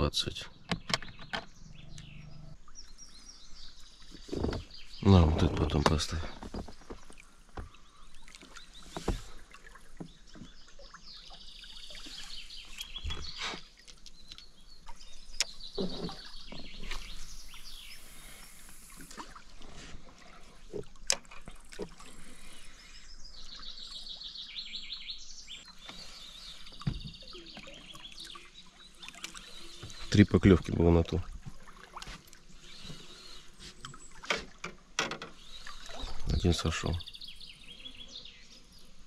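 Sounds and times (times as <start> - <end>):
birds singing: 0.0 - 19.3, 21.4 - 39.0
sharp knocks and clicks: 0.7 - 1.6.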